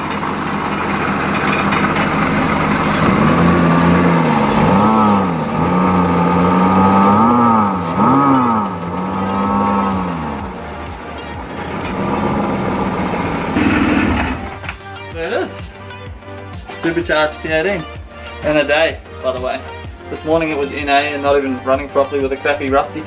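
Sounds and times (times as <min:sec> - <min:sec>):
supercharger blowing air: 0:00.0 - 0:14.8
car engine revving: 0:00.0 - 0:14.9.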